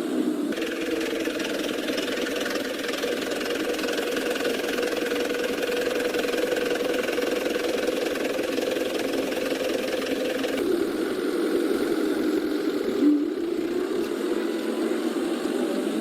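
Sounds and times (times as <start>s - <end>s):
toy truck engine-like hum: 0.5s - 16.0s.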